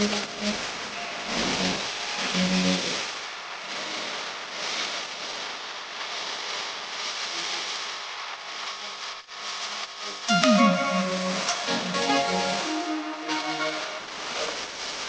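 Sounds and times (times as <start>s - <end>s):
wavering hiss: 0.0s - 3.2s.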